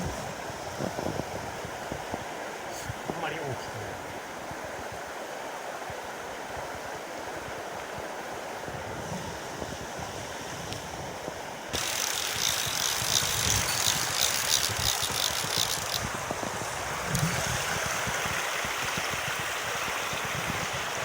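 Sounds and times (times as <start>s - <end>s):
stream running: 0.0s - 21.0s
fishing reel ratchet clicking: 11.8s - 16.1s.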